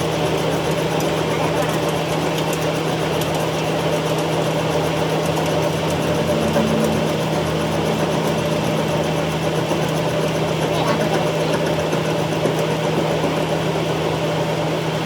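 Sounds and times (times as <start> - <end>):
machinery humming and rattling: 0.0 - 15.0.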